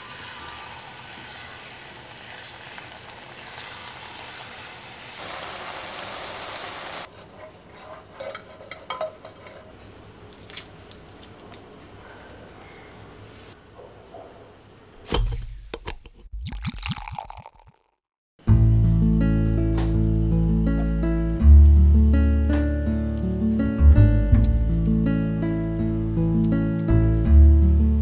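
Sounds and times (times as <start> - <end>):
batter sizzling in hot oil: 0.0 - 7.1.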